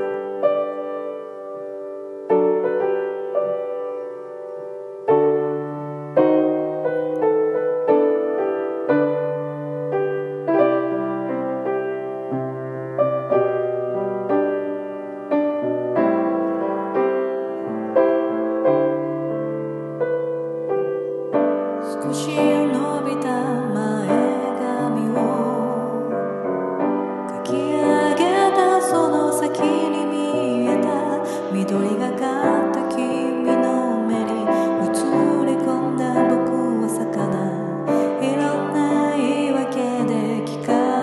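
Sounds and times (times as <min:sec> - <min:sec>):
gentle solo piano: 0:00.0 - 0:41.0.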